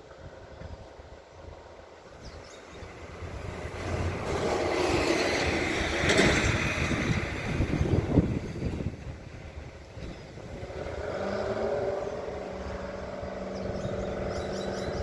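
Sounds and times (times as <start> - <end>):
vehicle driving past: 10.3 - 15.0.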